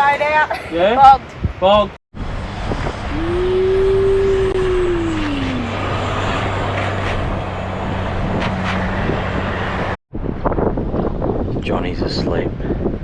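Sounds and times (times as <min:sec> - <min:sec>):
vehicle engine revving and humming: 0:02.2 - 0:10.0.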